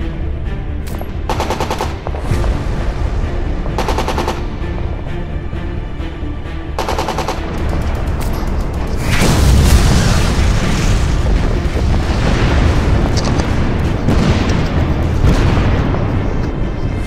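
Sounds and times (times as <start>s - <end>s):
music: 0.0s - 17.0s
heavy rumble: 0.3s - 17.0s
machine-gun fire: 1.3s - 2.0s, 3.8s - 4.5s, 6.8s - 8.0s
explosion: 9.0s - 17.0s.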